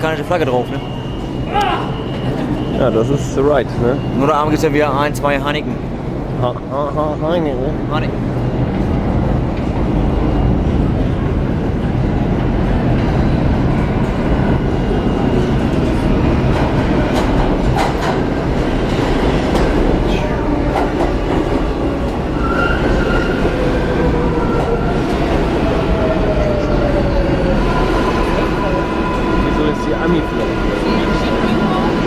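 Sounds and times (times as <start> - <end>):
subway train rumbling: 0.0 - 32.0
high wheel squeal: 22.3 - 23.6.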